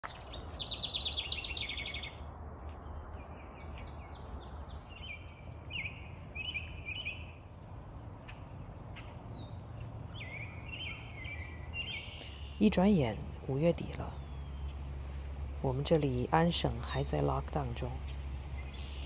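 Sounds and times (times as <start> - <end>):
songbirds singing: 0.0 - 2.2, 2.8 - 19.0
low background rumble: 10.1 - 19.0.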